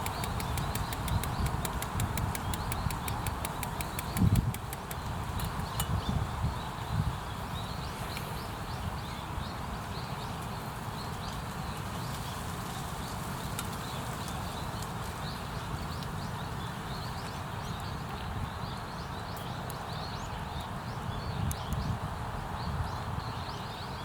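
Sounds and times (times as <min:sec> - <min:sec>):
sharp clicks: 0:00.0 - 0:05.7
outdoor background rush: 0:00.0 - 0:24.0
small birds chirping: 0:00.0 - 0:24.0.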